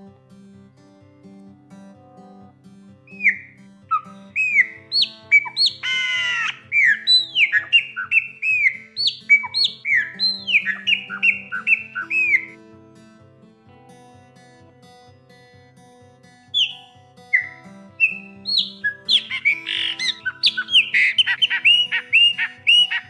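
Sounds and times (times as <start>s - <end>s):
soft guitar music: 0.0s - 23.0s
bird whistling song: 3.1s - 12.6s, 16.6s - 23.0s.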